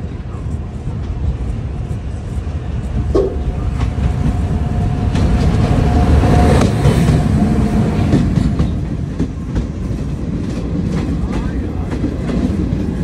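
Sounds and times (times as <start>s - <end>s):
moving train rumble and clatter: 0.0s - 13.0s
passing electric locomotive: 0.0s - 13.0s.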